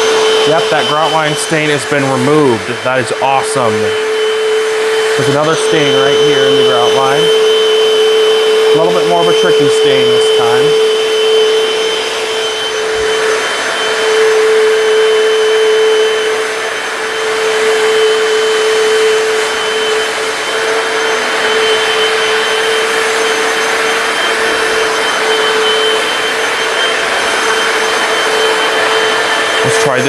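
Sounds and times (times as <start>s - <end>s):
floor cleaner motor whine: 0.0s - 30.0s.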